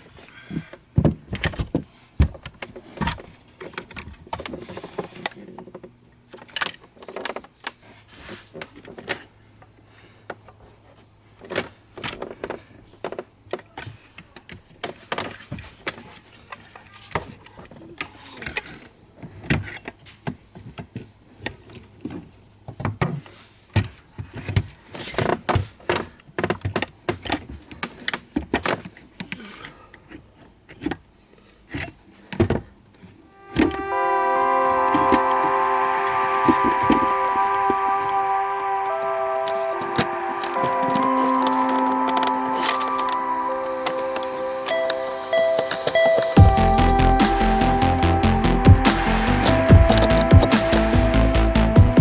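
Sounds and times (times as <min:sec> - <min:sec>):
short high chirp: 0:38.0 - 0:52.0.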